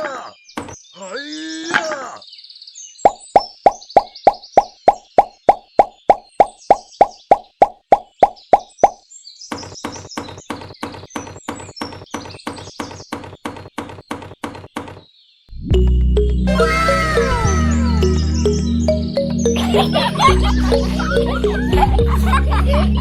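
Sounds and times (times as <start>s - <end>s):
cartoon plopping pops: 3.0s - 9.0s.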